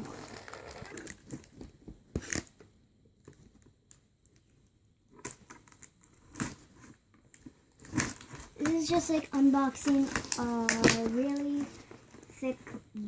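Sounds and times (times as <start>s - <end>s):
packaging rustling: 7.4s - 12.5s.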